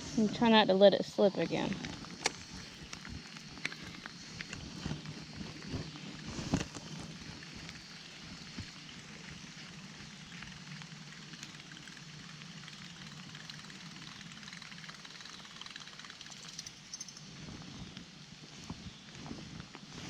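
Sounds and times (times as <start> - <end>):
faint ticks: 6.5 - 17.2.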